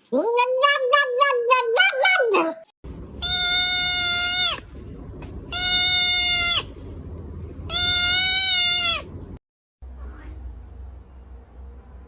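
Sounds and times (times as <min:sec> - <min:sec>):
cat meowing: 0:03.2 - 0:04.6, 0:05.5 - 0:06.7, 0:07.7 - 0:09.1.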